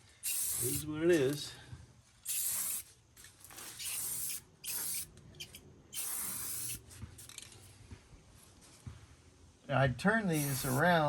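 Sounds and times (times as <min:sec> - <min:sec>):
spray-paint can hissing: 0:00.2 - 0:00.8, 0:02.2 - 0:02.9, 0:03.8 - 0:07.5, 0:10.3 - 0:10.8.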